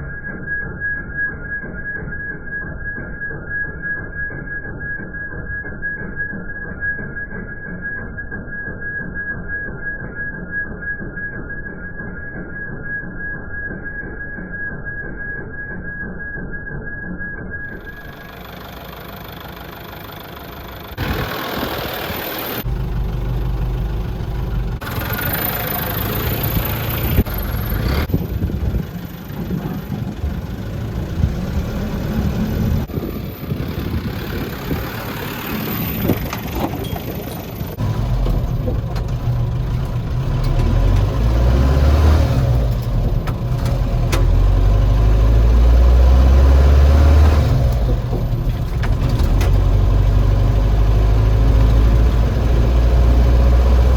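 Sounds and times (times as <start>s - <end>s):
dump truck diesel engine running: 17.7s - 53.9s.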